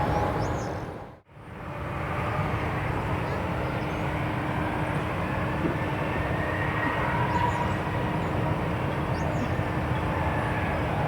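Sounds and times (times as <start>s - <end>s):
jet engines rumbling: 0.0s - 1.2s.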